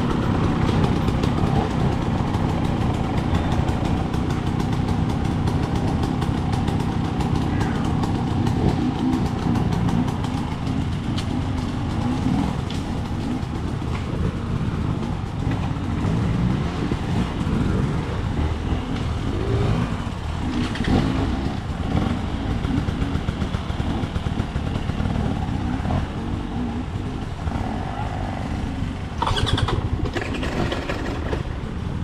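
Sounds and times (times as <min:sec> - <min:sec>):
dirt bike engine revving: 0:00.0 - 0:31.4.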